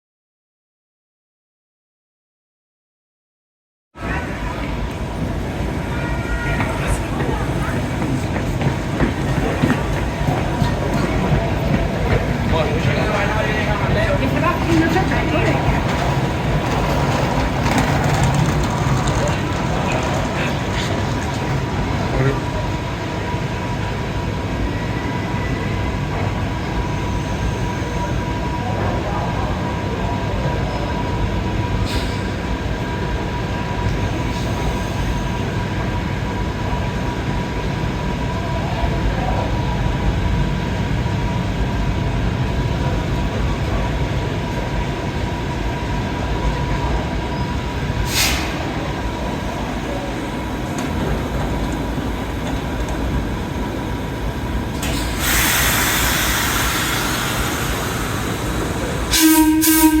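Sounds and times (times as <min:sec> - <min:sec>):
train rumbling: 0:04.0 - 1:00.0
train horn: 0:59.1 - 1:00.0.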